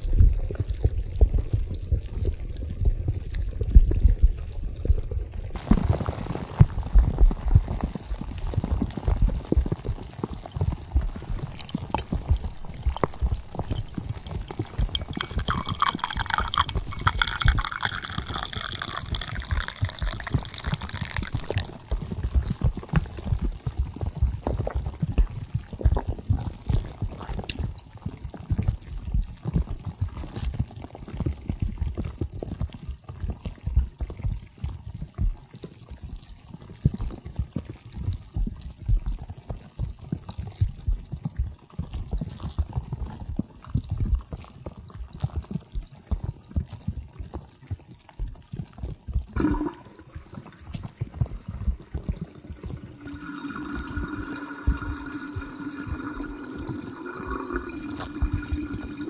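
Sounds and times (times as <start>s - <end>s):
water sloshing and splashing: 11.0s - 22.5s, 49.3s - 59.0s.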